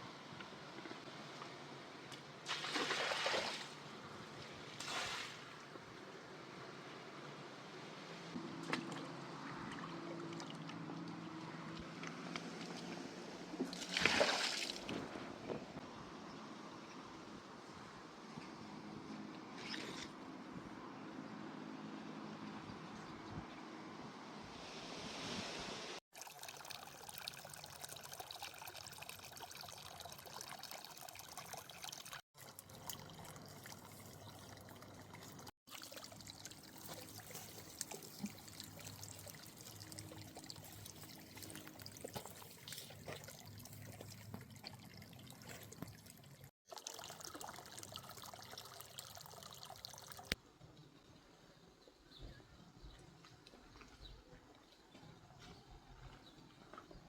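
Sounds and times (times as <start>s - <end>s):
water trickling and pouring: 26.1s - 50.4s.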